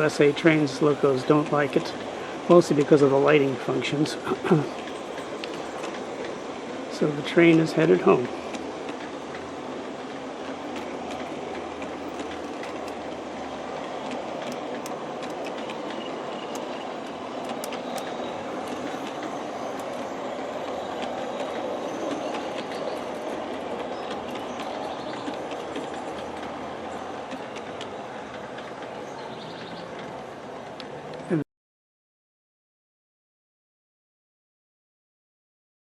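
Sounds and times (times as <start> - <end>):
model train running on track: 0.0 - 31.4
light clicks from rails: 1.3 - 29.0.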